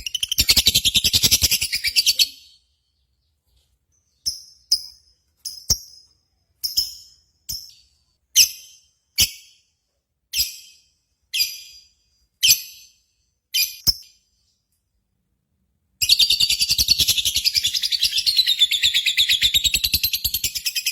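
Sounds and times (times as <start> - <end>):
lovebird chirping: 0.0 - 9.5, 16.0 - 20.9.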